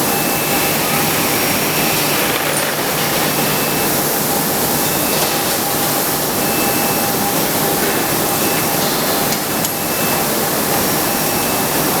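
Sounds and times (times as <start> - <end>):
industrial machinery rushing: 0.0 - 5.0.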